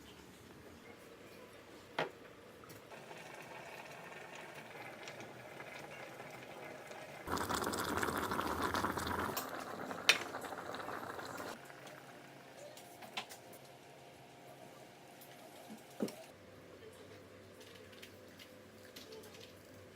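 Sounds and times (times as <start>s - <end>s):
water boiling in a kettle: 2.6s - 16.4s, 17.3s - 19.9s.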